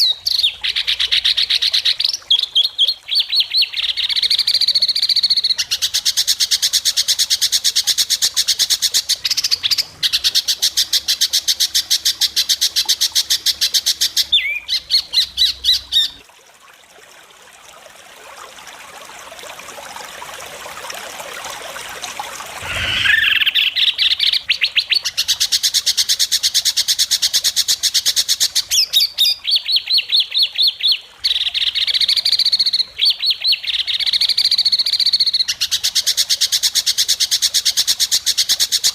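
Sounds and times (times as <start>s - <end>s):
bird singing rapid high notes: 22.6s - 24.4s.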